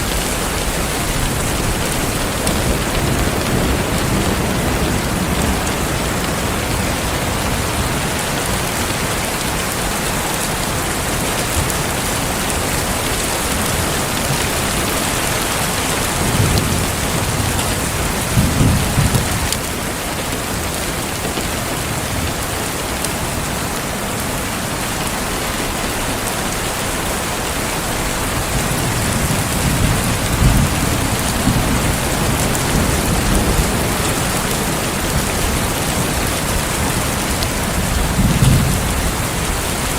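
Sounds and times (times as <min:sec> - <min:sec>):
heavy rain: 0:00.0 - 0:39.9
low rolls of thunder: 0:15.8 - 0:19.7, 0:28.4 - 0:39.9.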